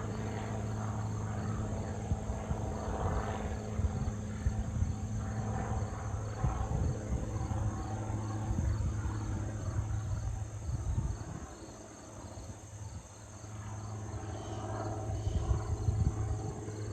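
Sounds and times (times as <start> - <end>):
propeller plane droning overhead: 0.0 - 16.9
wind on microphone: 2.0 - 11.6, 15.0 - 16.9.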